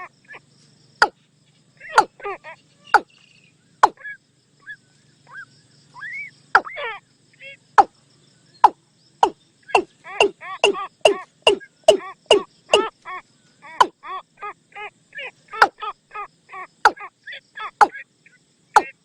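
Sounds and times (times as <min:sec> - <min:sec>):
bird calling sharp notes: 0:03.8 - 0:04.1, 0:06.0 - 0:06.8, 0:08.6 - 0:13.0.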